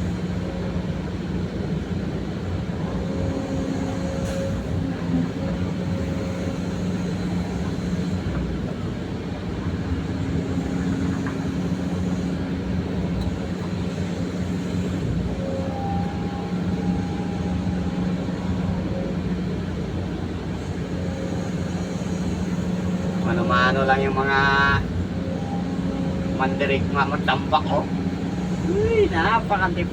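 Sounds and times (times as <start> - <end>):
diesel engine droning: 0.0 - 29.9
higher whine: 10.0 - 29.9.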